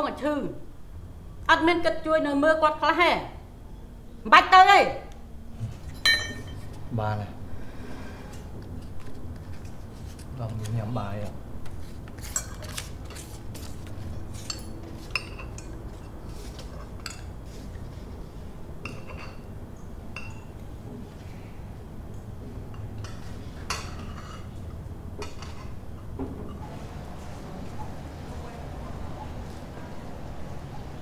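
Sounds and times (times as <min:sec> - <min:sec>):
low steady hum: 0:00.0 - 0:12.9
cutlery clinking on plates: 0:05.9 - 0:06.8, 0:12.2 - 0:13.3, 0:14.4 - 0:17.4, 0:18.8 - 0:19.5, 0:22.7 - 0:24.6, 0:25.2 - 0:25.8.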